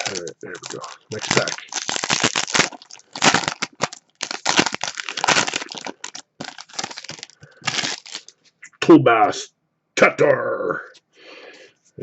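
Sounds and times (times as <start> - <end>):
wrapper crinkling: 0.0 - 8.4.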